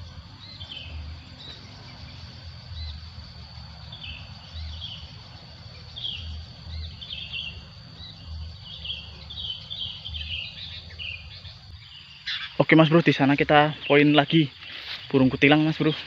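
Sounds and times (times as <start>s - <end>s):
birds chirping: 0.0s - 16.0s
high-pitched insect drone: 0.0s - 16.0s.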